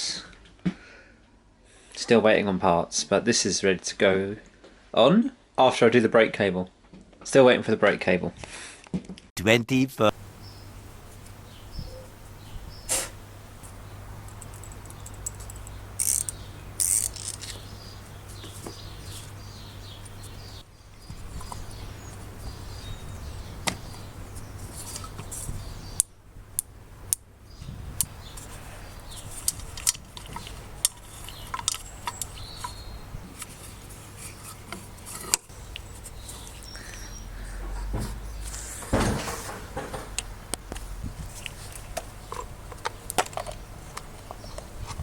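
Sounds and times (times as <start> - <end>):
small parts and tools clicking: 14.3 - 17.6.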